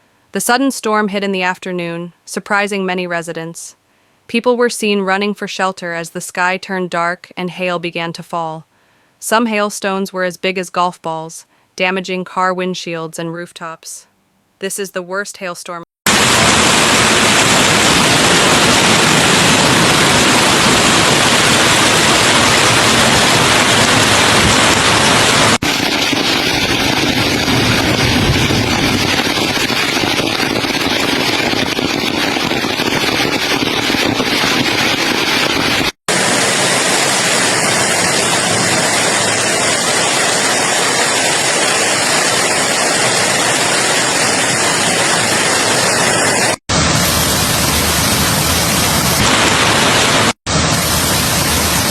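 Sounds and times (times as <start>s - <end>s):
heavy hail and rain: 16.1s - 51.9s.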